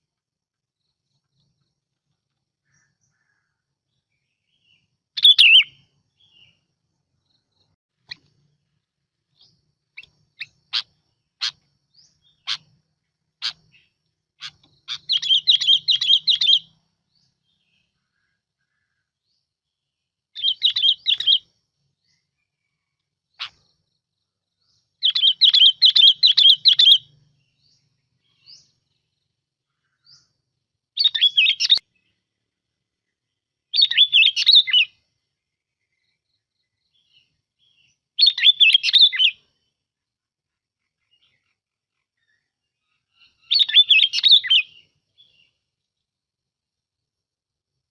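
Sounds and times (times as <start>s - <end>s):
bubbling bird song: 4.5s - 6.6s, 9.3s - 17.6s, 20.4s - 21.4s, 25.0s - 27.6s, 38.2s - 39.4s, 43.2s - 45.4s.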